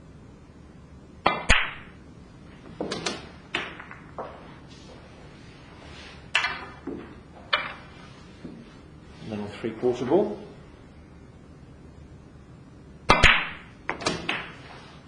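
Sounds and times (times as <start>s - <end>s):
snooker balls knocking: 1.2s - 2.0s, 2.7s - 4.7s, 6.3s - 8.7s, 13.1s - 14.8s.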